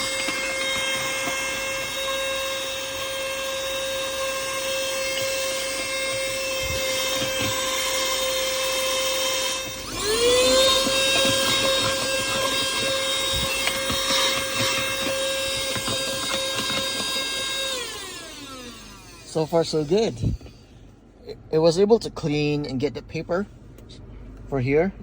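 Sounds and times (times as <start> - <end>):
handheld vacuum motor whine: 0.0 - 20.8.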